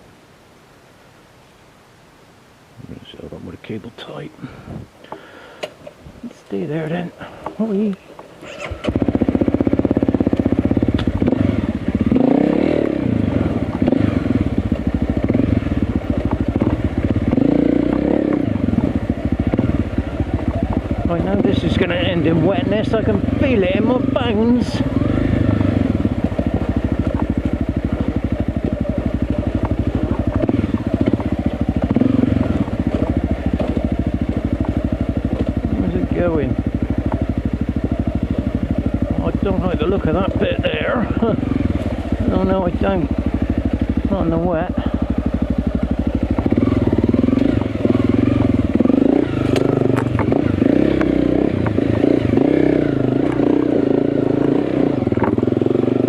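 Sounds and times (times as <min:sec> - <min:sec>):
motorcycle engine chugging: 0:06.8 - 0:56.0
bike knocking and clattering: 0:26.1 - 0:35.7.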